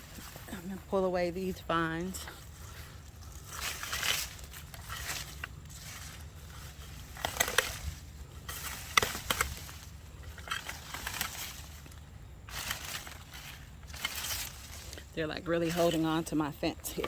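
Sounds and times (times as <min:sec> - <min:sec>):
vines rustling and crackling: 0:00.0 - 0:17.0
sharp snaps of vines: 0:07.1 - 0:13.2.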